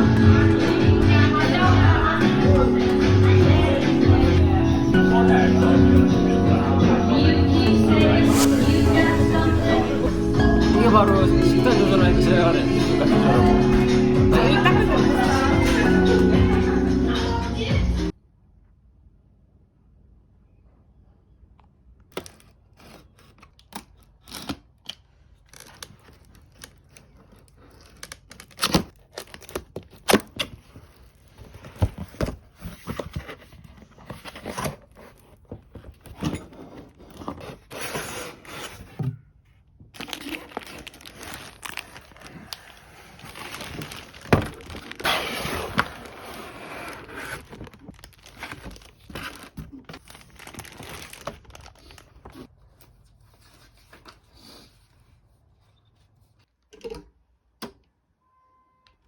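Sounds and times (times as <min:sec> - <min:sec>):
packaging crinkling and tearing: 0:22.1 - 0:36.2, 0:39.9 - 0:52.5.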